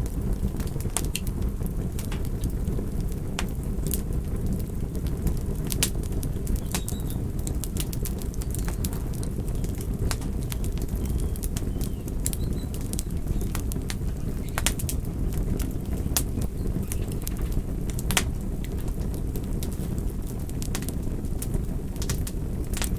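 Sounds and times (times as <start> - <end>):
campfire pops and snaps: 0.0 - 22.9
low rumble of flames: 0.0 - 22.9.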